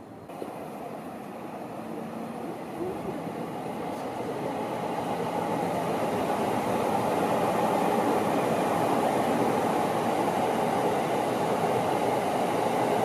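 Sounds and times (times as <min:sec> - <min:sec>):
electric train rumbling: 0:00.0 - 0:13.0.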